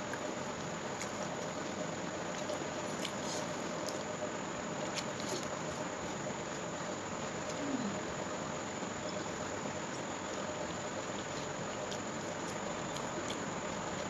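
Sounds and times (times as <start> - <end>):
background hiss: 5.6 - 10.3.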